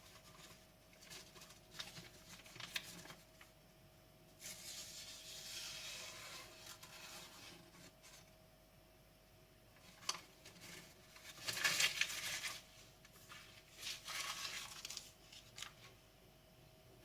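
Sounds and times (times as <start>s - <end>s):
knife slicing through paper: 4.4s - 7.7s.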